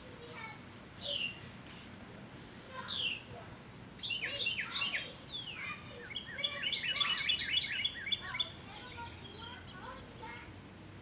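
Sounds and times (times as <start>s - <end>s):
small birds chirping: 4.0s - 11.0s.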